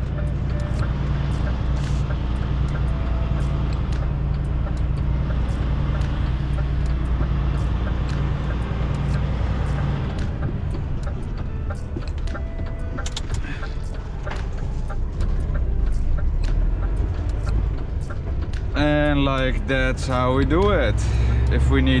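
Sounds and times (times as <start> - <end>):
diesel truck engine drone: 0.0 - 22.0
light ticking: 0.0 - 22.0.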